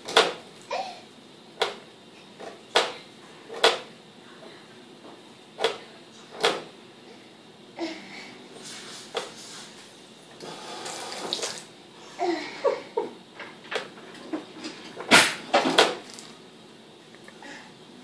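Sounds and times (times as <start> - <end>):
refrigerator clicks and knocks: 0.0 - 0.4, 2.4 - 3.0, 3.6 - 3.9, 6.4 - 6.7.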